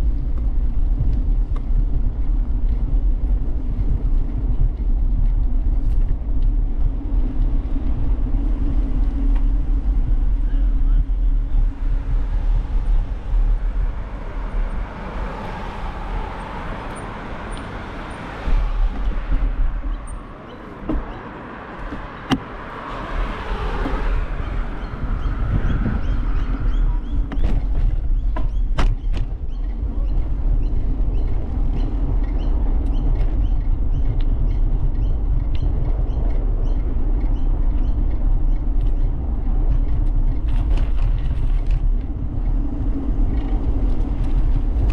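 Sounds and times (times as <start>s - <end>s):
road traffic passing: 0.0s - 44.9s
wind and road rumble: 0.0s - 44.9s.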